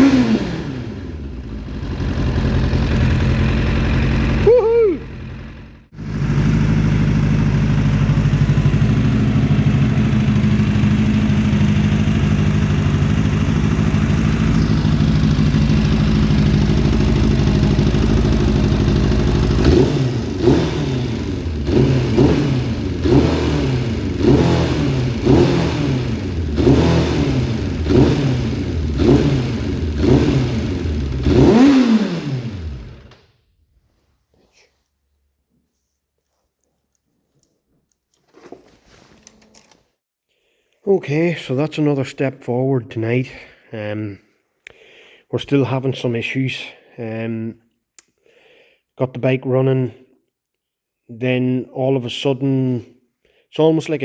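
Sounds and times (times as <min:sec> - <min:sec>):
engine revving: 0:00.0 - 0:33.2
motorcycle engine idling: 0:00.8 - 0:31.7.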